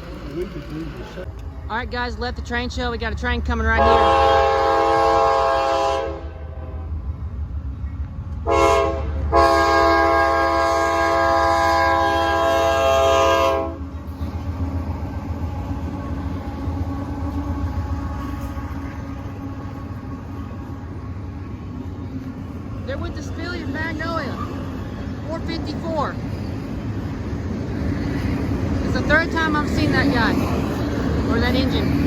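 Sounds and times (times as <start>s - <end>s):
low rumble of train: 0.0s - 32.0s
locomotive air horn blasts: 3.8s - 7.0s, 8.4s - 13.9s.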